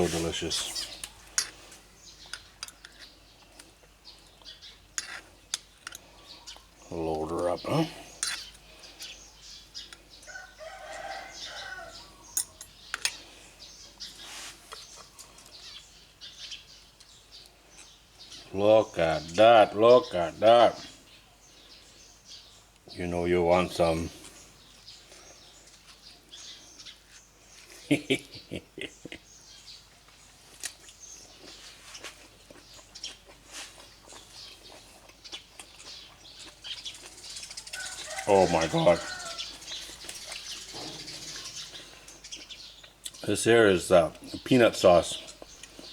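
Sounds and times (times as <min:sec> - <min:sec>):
birds chirping: 0:00.0 - 0:45.9
rooster crowing: 0:10.3 - 0:12.2, 0:37.7 - 0:39.6
person chewing food: 0:30.1 - 0:38.2.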